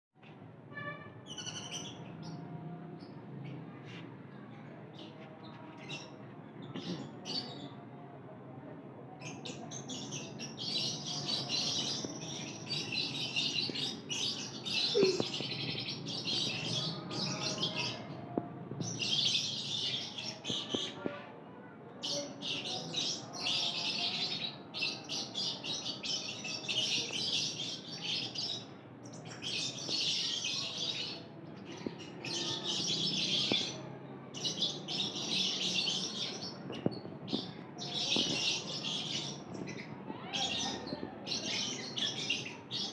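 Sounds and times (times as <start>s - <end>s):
lovebirds chirping: 0.8s - 3.8s, 9.3s - 18.1s, 22.1s - 42.9s.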